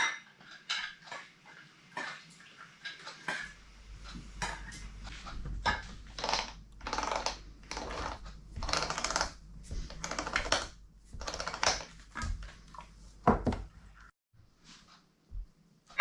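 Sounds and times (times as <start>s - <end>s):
food scraping strokes: 3.4s - 13.2s.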